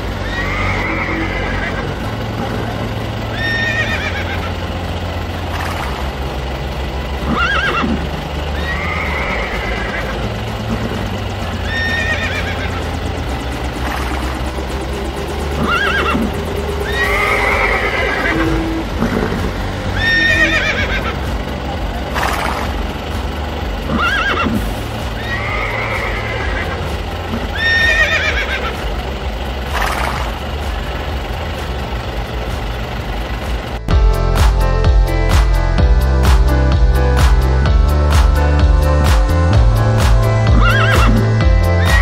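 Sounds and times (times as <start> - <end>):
steady low hum: 0.0 - 42.0
horses whinnying: 0.2 - 2.1, 3.3 - 4.6, 7.3 - 8.0, 8.6 - 11.0, 11.6 - 13.0, 15.6 - 21.3, 23.9 - 28.8, 40.5 - 41.2.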